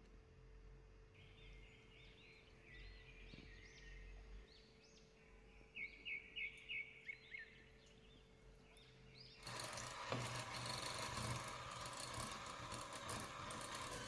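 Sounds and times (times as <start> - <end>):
small birds chirping: 1.2 - 10.0.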